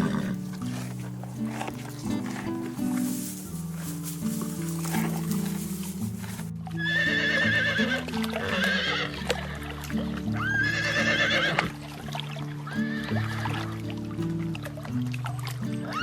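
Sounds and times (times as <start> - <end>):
horse whinnying: 0.0 - 1.0, 6.8 - 11.8, 12.7 - 13.6
background music: 0.0 - 16.0.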